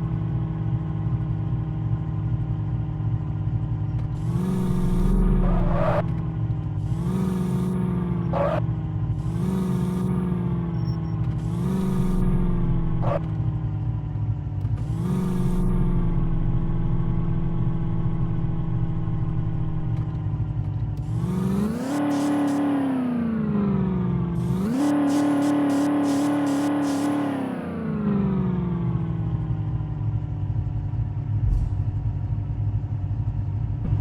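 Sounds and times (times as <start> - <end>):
vehicle engine revving: 3.8 - 29.9, 31.2 - 34.0.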